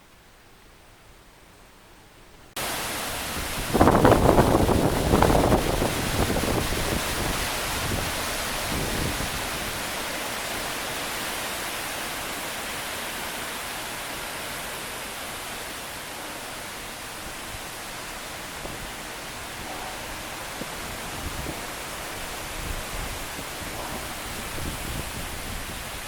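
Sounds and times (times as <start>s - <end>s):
strong wind blowing: 3.0s - 10.0s, 16.9s - 26.0s.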